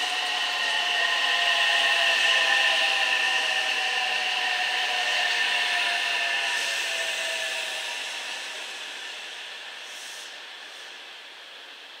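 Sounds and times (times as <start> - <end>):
faint train whine: 0.0 - 12.0
train rolling hiss: 0.0 - 12.0.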